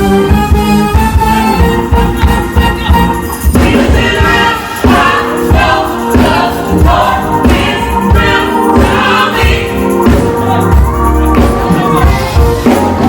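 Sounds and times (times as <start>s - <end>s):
gospel band: 0.0s - 13.0s
group of singers: 3.4s - 13.0s.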